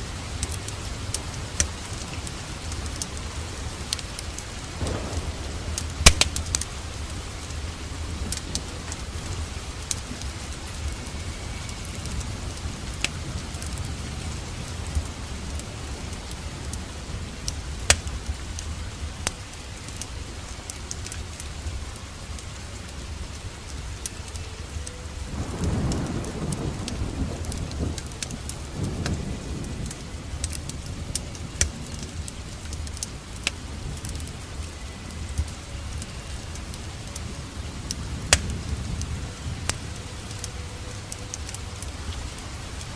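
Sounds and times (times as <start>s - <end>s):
steady rain: 0.0s - 42.9s
wood fire crackling: 0.0s - 42.9s
deep rumble: 4.6s - 19.2s.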